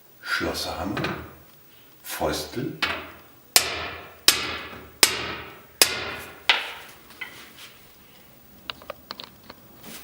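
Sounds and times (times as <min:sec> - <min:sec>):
hammer ringing on metal: 0:02.8 - 0:07.0.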